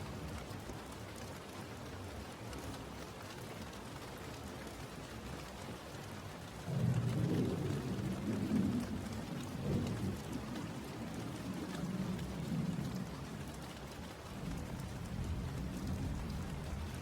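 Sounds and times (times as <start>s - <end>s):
steady rain falling: 0.0s - 17.0s
low thunder rumble: 6.7s - 13.5s, 14.4s - 17.0s.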